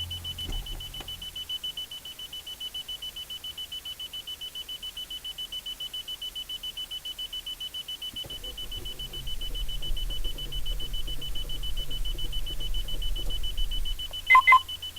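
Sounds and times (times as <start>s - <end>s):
car warning chime beeping: 0.0s - 14.9s
engine cranking not starting: 8.2s - 14.9s.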